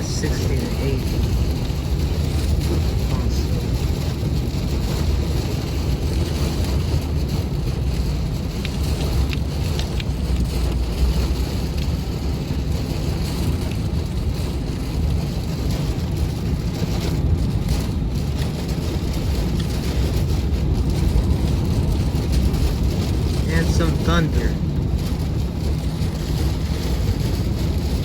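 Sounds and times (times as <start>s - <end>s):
strong wind with rain: 0.0s - 28.0s
wind buffeting microphone: 0.0s - 28.0s.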